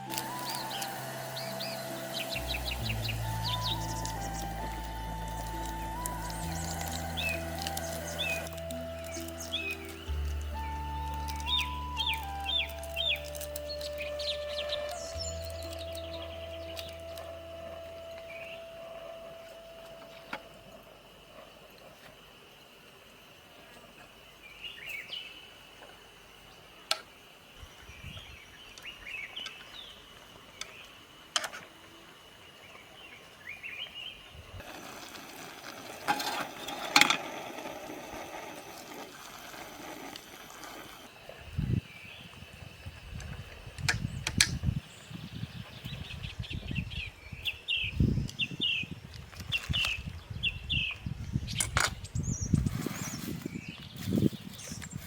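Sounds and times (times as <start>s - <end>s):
small birds chirping: 0.0s - 20.5s, 43.8s - 55.0s
steady hiss: 0.0s - 46.4s.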